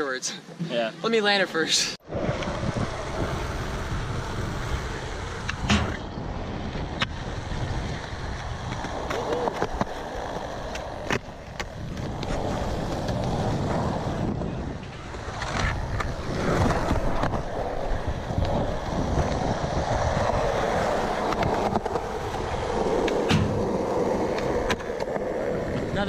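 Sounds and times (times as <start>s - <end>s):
skateboard wheels rolling on concrete: 0.2s - 26.0s
skateboard clacks: 8.0s - 13.4s.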